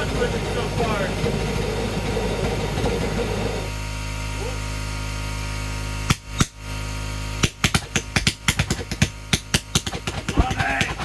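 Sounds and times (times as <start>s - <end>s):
combustion chamber roaring: 0.0s - 3.8s
steady hum: 0.0s - 11.0s
sharp ignition pops: 6.0s - 6.7s, 7.4s - 11.0s.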